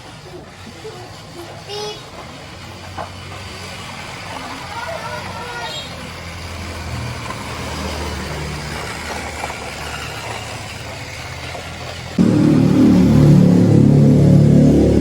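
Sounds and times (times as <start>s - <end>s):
low engine-like hum: 3.0s - 15.0s
loud held tones: 12.2s - 15.0s.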